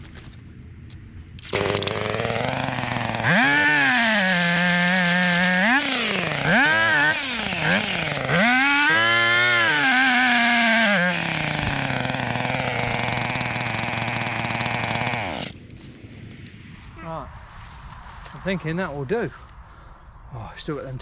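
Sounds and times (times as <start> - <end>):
chainsaw engine revving: 1.4 - 15.6.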